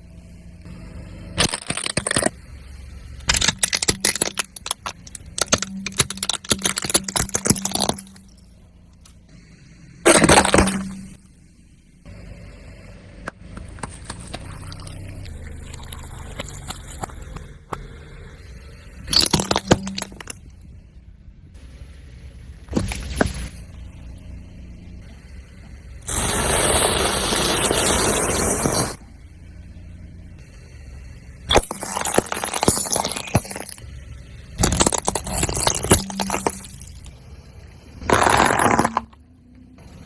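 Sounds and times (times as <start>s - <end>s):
car tyre rumbling: 0.0s - 40.0s
objects crunching under tyre: 1.4s - 2.4s, 3.2s - 9.2s, 10.1s - 11.2s, 13.4s - 17.6s, 19.0s - 20.5s, 22.7s - 23.8s, 26.1s - 29.0s, 31.5s - 33.8s, 34.6s - 39.2s.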